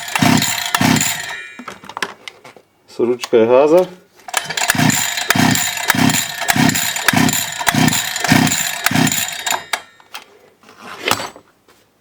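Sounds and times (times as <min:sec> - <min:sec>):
pull-starter cranking engine: 0:00.0 - 0:01.4, 0:04.3 - 0:09.9.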